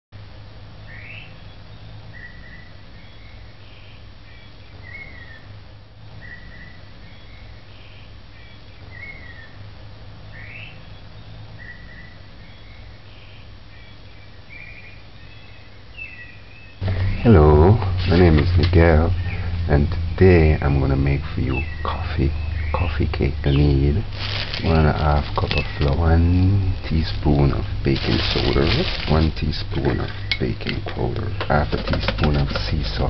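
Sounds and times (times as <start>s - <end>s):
steady low hum: 0.2s - 33.0s
birds chirping and whistling: 0.9s - 5.5s, 6.2s - 9.6s, 10.3s - 31.8s.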